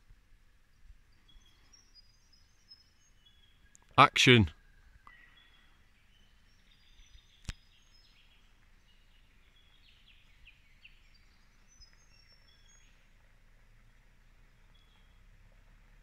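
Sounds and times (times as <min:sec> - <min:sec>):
faint bird chirps and whistles: 0:01.1 - 0:03.7, 0:04.6 - 0:13.1.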